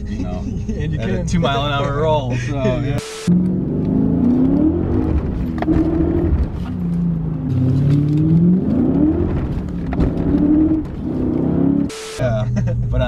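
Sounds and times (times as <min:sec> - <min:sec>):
car engine accelerating: 0:01.2 - 0:13.0.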